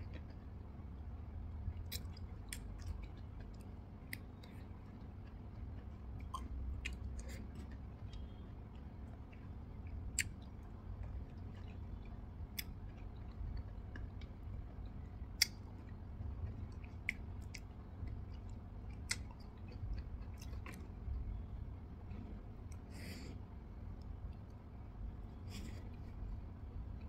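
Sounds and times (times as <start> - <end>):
low steady hum: 0.0 - 27.0
person chewing: 1.7 - 21.4
sharp mouth clicks: 10.0 - 10.5.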